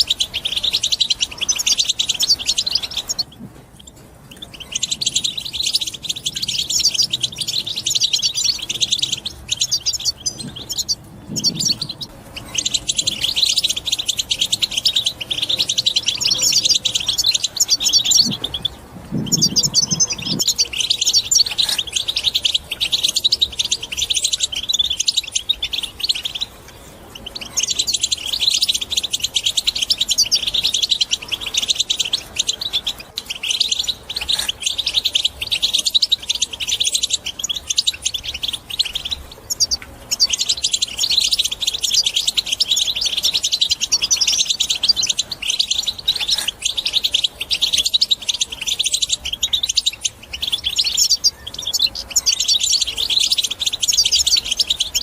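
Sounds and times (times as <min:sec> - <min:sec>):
goldfinch twittering song: 0:00.0 - 0:55.0
faint low thuds: 0:10.3 - 0:12.1, 0:18.2 - 0:20.4.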